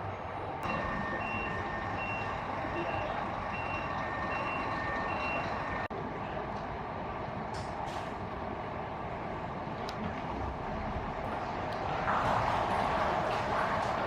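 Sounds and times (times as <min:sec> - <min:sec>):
diesel engine running: 0:00.0 - 0:06.0
two-tone reversing alarm beeping: 0:00.6 - 0:05.9.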